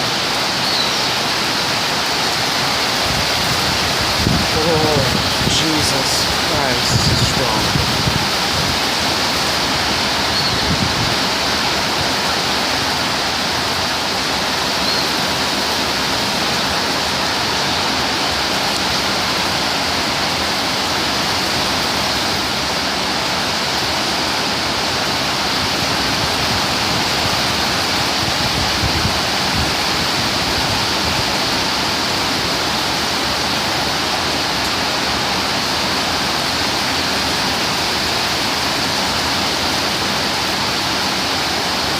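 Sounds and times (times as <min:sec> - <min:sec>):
torrential rain hissing: 0:00.0 - 0:41.9
wind gusts buffeting microphone: 0:03.0 - 0:12.1, 0:26.0 - 0:31.4.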